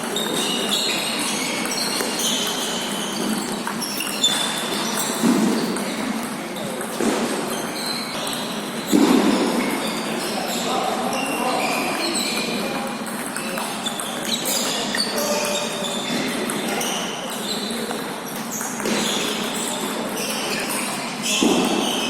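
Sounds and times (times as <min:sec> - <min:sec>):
distant table tennis clicks: 0:11.9 - 0:20.8
table tennis ball pings: 0:12.0 - 0:14.8.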